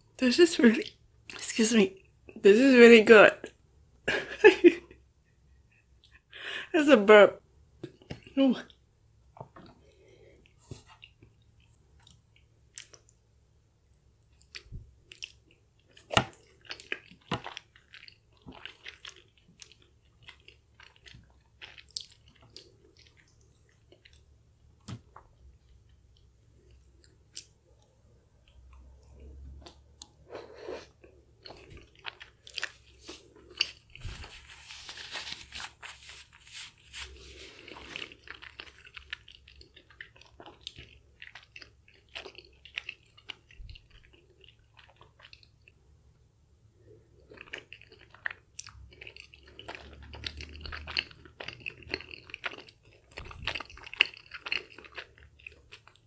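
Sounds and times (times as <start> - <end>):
chewing rice cakes: 9.4 - 13.2, 13.8 - 45.9, 46.8 - 56.0
wet mouth sounds: 47.3 - 56.0.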